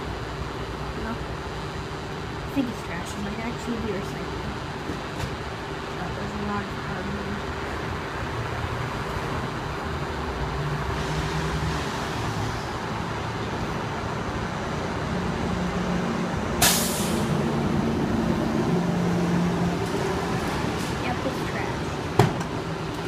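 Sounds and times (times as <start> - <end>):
truck diesel engine running: 0.0 - 11.0
air brake hiss: 16.6 - 17.3.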